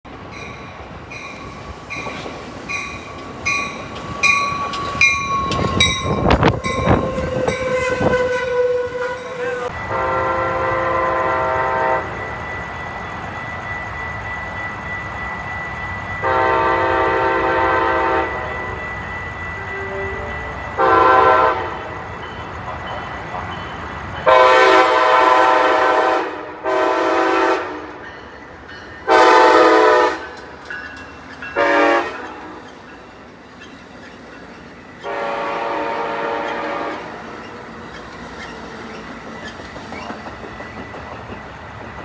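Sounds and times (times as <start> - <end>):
train passing: 0.0 - 42.0
railroad crossing bell ringing: 0.3 - 11.0, 11.7 - 41.4
train wheel knocks: 2.0 - 8.5, 36.5 - 42.0
locomotive horn blasts: 5.6 - 12.2, 16.2 - 18.8, 19.6 - 21.9, 24.3 - 28.0, 29.1 - 30.4, 31.6 - 32.6, 35.0 - 37.3.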